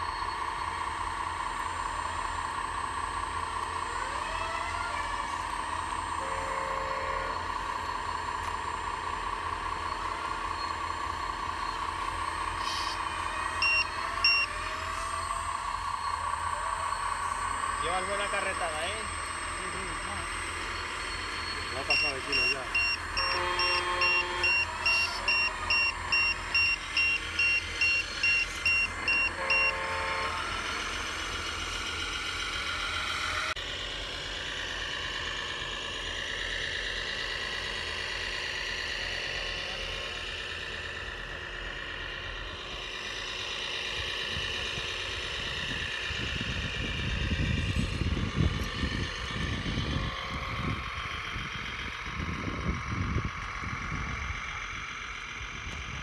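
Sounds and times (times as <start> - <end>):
reversing alarm beeps: 0.0 - 3.8, 5.3 - 33.4
model truck motor whine: 0.0 - 56.0
low rumbling: 22.7 - 56.0.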